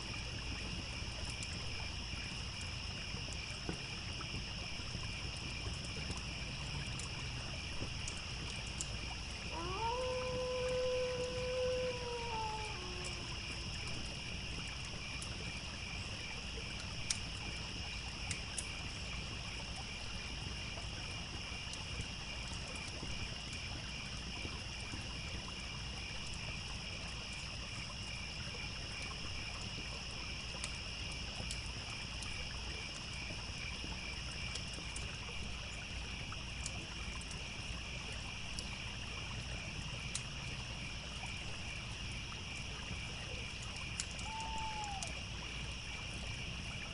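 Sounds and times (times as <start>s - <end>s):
campfire crackles: 0.0s - 46.9s
crickets chirping: 0.0s - 46.9s
wolf howling: 9.5s - 13.5s, 44.2s - 45.2s.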